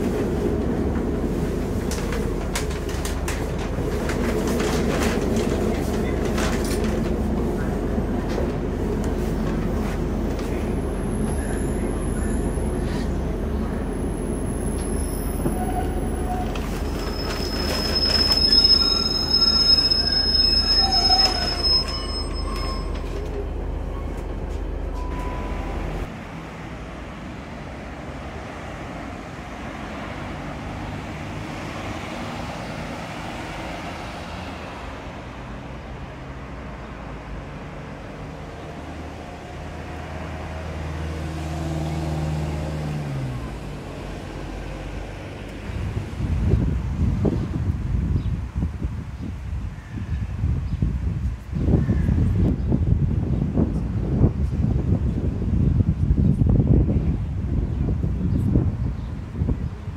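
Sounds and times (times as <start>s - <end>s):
train rumbling: 0.0s - 59.9s
wheels squealing: 1.6s - 26.1s.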